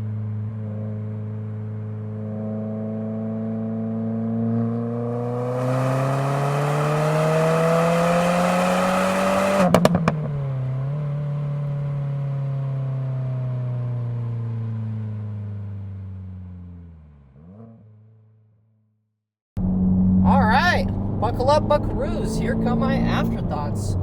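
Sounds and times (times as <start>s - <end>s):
car engine revving: 2.8s - 10.1s, 19.6s - 24.0s.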